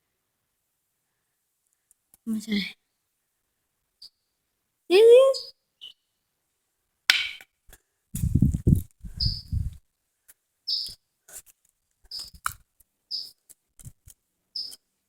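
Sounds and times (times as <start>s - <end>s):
small bird chirping: 4.0s - 4.3s, 4.9s - 6.1s, 8.3s - 9.8s, 10.7s - 11.0s, 12.1s - 12.5s, 13.1s - 13.4s, 14.5s - 14.8s.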